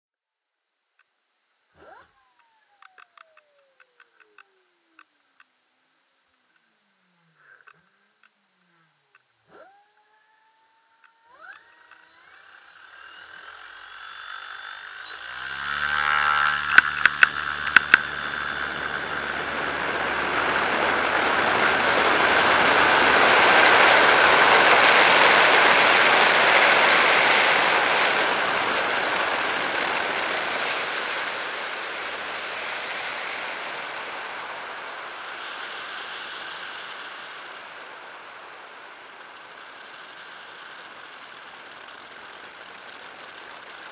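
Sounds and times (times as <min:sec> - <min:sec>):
electric motor whining: 0:01.7 - 0:43.9
sharp clicks: 0:01.8 - 0:05.6, 0:09.1 - 0:19.0.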